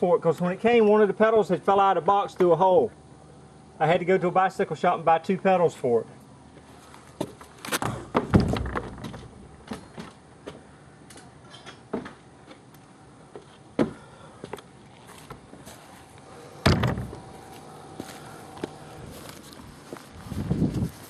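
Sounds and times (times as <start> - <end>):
knocks and thumps: 7.2 - 10.6, 16.6 - 17.2.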